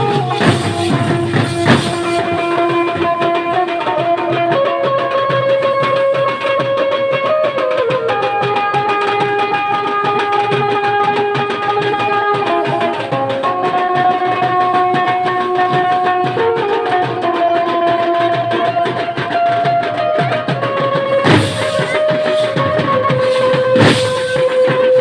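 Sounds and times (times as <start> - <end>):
steady drum beat: 0.0 - 4.2, 21.1 - 25.0
sharp loud hit: 21.1 - 25.0.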